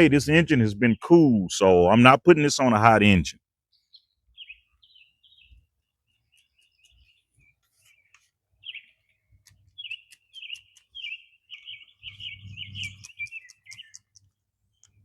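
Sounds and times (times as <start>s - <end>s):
songbirds chirping and singing: 2.5s - 15.0s
sharp ticks: 9.4s - 11.2s, 12.6s - 15.0s.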